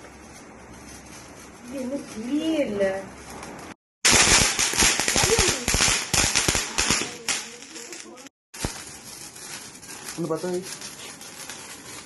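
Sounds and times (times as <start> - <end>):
firecrackers popping: 3.5 - 12.0.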